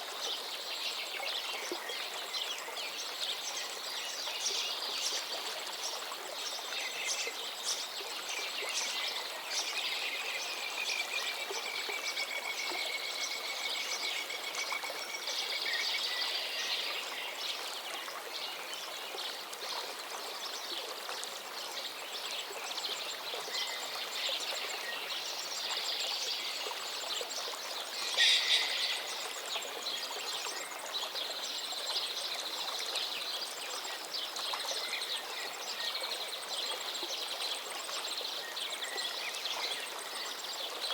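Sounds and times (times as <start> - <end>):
stream flowing: 0.0 - 40.9
birds singing and chirping: 27.9 - 30.7
loud sharp bird call: 28.0 - 29.3.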